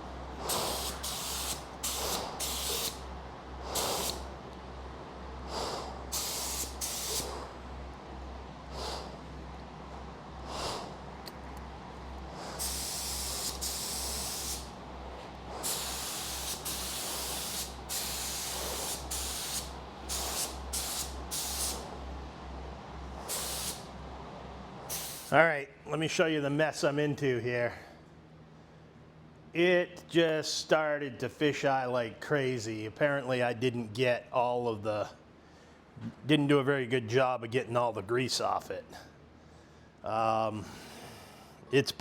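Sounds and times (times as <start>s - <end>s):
paint spray gun hissing: 0.4s - 3.0s, 3.7s - 4.3s, 5.6s - 7.4s, 12.5s - 14.8s, 15.5s - 21.9s, 23.2s - 23.9s, 24.9s - 25.4s.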